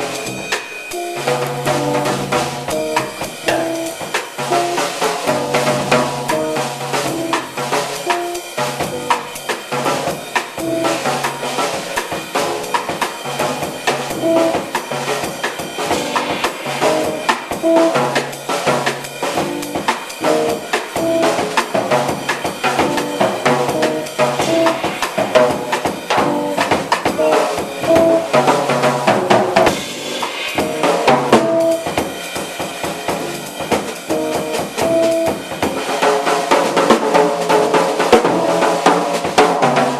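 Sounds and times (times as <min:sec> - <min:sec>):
guitar: 0:00.0 - 0:07.4, 0:19.4 - 0:21.9
bass: 0:00.0 - 0:35.8, 0:36.6 - 0:39.9
busy drum kit: 0:00.0 - 0:39.9
tenor saxophones melody: 0:01.0 - 0:01.5.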